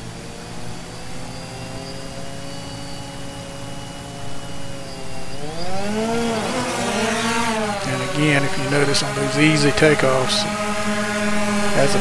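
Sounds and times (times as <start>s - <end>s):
drone propellers humming: 0.0s - 12.0s.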